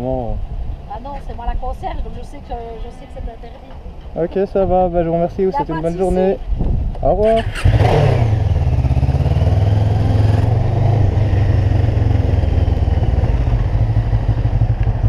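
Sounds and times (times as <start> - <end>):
motorcycle engine pulling away: 7.2 - 15.0.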